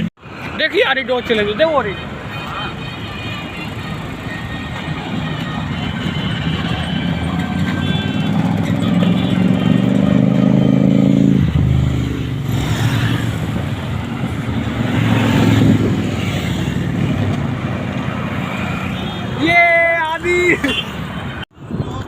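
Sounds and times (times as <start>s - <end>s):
passing traffic: 0.0s - 22.0s
motorcycle engine accelerating: 7.5s - 18.0s.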